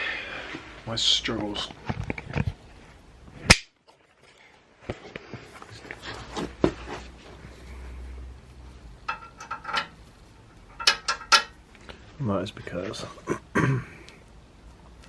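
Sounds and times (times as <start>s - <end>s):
metal parts clicking and knocking: 9.0s - 10.0s, 10.7s - 11.6s.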